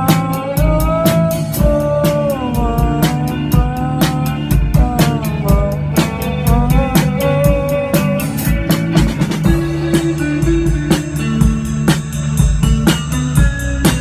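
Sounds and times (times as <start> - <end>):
bass guitar: 0.0 - 14.0
drum kit beat: 0.0 - 14.0
electric guitar: 0.0 - 14.0
pitch-bending melody line: 4.8 - 14.0.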